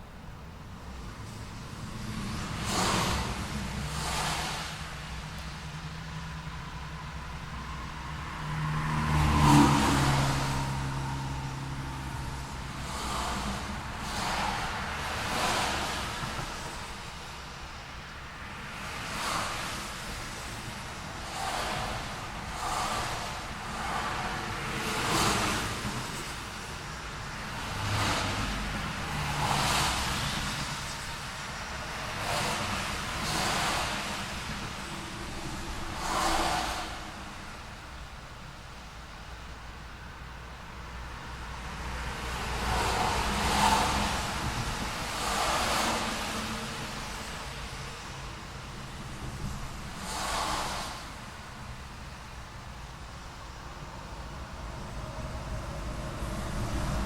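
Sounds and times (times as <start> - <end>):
cars passing: 0.0 - 57.0
rumble of engines and tyres: 0.0 - 57.0
vehicle driving past: 1.8 - 17.0, 21.2 - 38.2, 41.6 - 51.1, 53.9 - 57.0.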